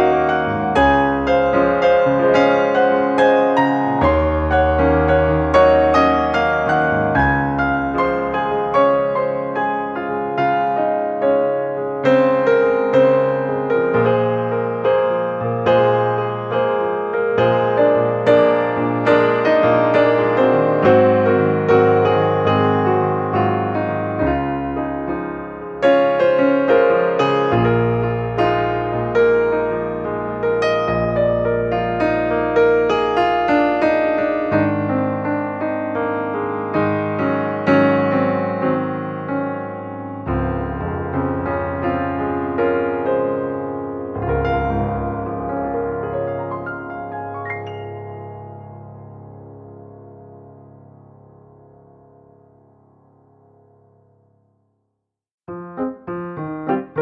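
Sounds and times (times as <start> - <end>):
soft piano chords: 0.0 - 54.6, 55.5 - 57.0.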